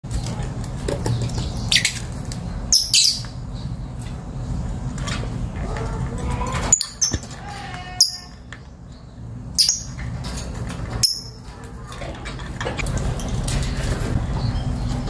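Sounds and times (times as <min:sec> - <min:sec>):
lovebirds chirping: 0:01.0 - 0:04.6, 0:07.9 - 0:10.0.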